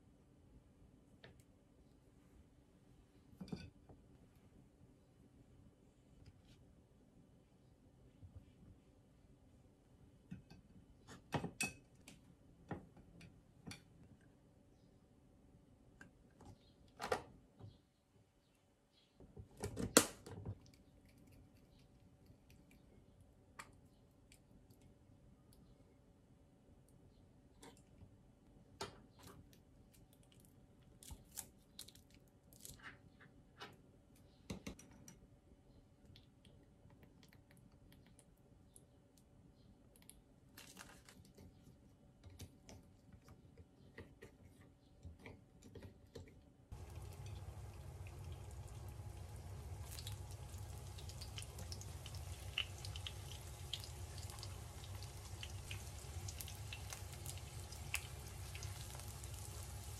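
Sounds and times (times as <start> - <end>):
low hum: 46.7 - 59.9
food sizzling in oil: 46.8 - 59.9.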